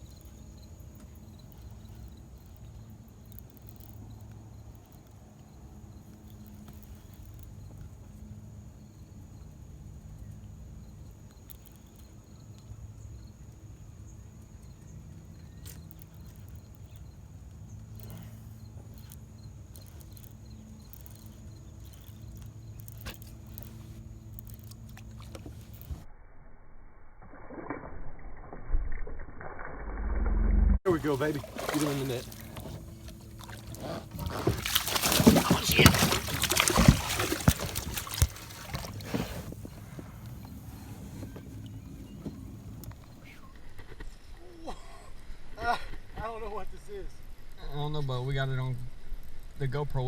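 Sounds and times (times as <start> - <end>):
wind: 0.0 - 50.0
water noise: 22.1 - 26.1, 27.1 - 43.4.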